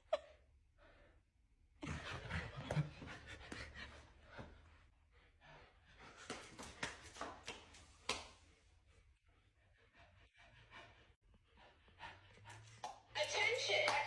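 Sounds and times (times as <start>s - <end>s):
dog panting: 1.8s - 7.3s, 8.8s - 14.0s.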